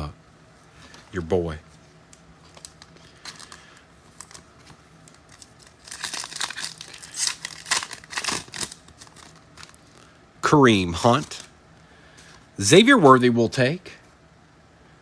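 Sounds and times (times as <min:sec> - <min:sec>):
foil wrapper crinkling and tearing: 0:02.4 - 0:10.1.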